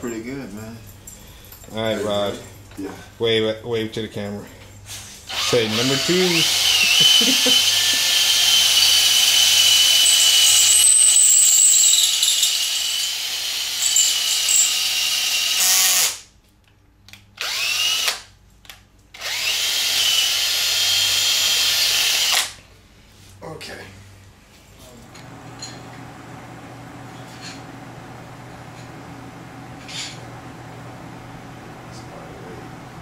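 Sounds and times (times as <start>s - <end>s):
electric drill whining: 5.3s - 16.2s, 17.4s - 18.3s, 19.2s - 22.6s.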